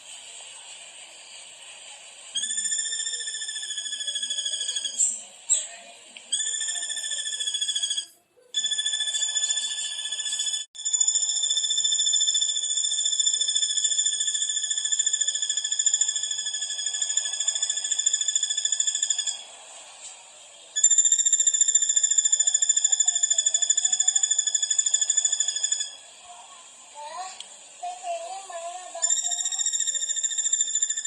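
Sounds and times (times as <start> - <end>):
high fast-pulsing animal trill: 2.4 - 5.2, 6.3 - 19.5, 20.8 - 26.0, 27.8 - 31.0.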